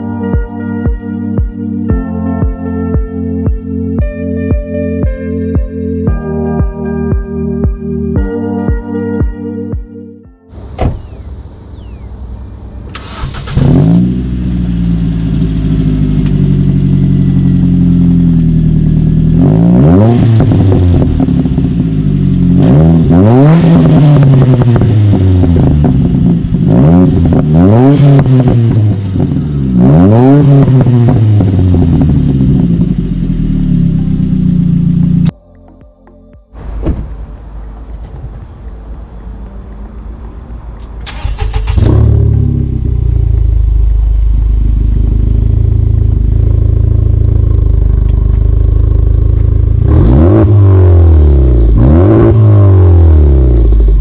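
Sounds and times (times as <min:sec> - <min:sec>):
car engine starting and revving: 0:10.5 - 0:35.3, 0:36.6 - 0:54.0.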